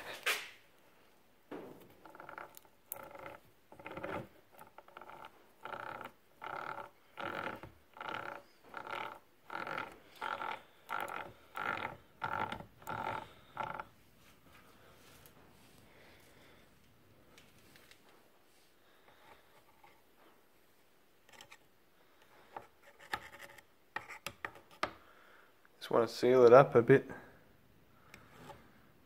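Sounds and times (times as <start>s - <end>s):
gearhead squeaking: 2.0s - 13.9s.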